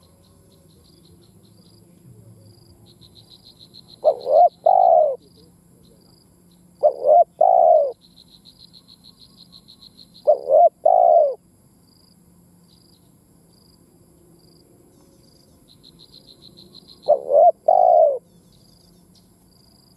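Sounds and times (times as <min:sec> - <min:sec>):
dove cooing: 0:03.9 - 0:05.5, 0:06.8 - 0:08.0, 0:10.2 - 0:11.4, 0:16.8 - 0:18.3.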